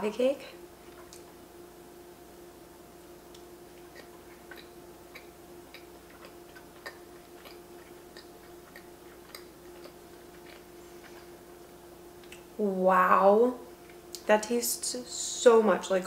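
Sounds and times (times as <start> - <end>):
faint steady hum: 0.0 - 16.0
mouth chewing clicks: 3.3 - 11.2, 12.2 - 12.5.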